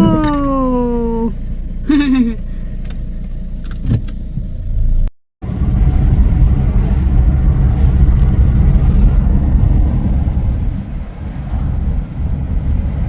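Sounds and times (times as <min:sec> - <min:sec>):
loud low rumble: 0:04.6 - 0:13.0.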